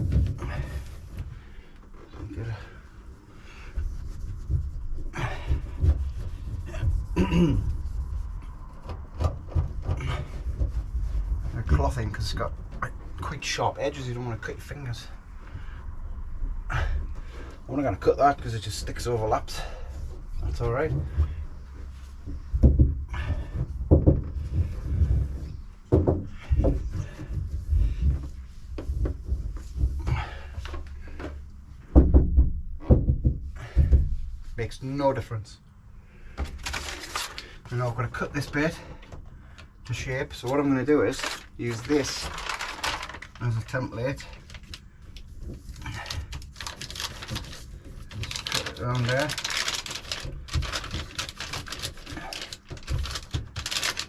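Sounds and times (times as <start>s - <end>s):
knocks and rubbing on metal panel: 0.0s - 15.8s, 17.0s - 34.8s, 36.3s - 54.0s
rustling of mat handled by hand: 0.0s - 35.3s, 36.2s - 54.0s
dull knocks on metal panel: 31.9s - 34.2s.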